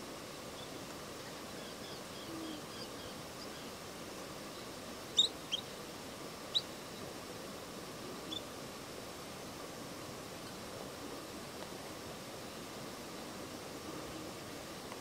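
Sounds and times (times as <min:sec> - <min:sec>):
steady outdoor hiss: 0:00.0 - 0:15.0
faint high twittering: 0:04.5 - 0:05.8.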